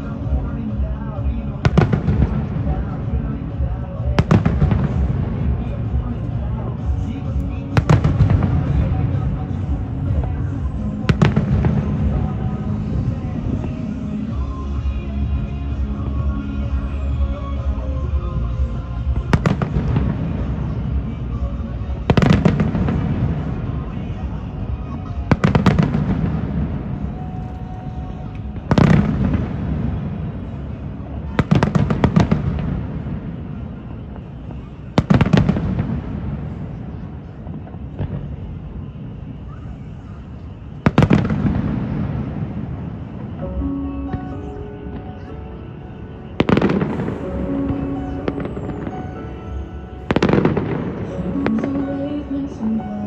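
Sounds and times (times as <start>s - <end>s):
fireworks bangs with rumbling echo: 0.0s - 52.8s
background music: 0.0s - 53.0s.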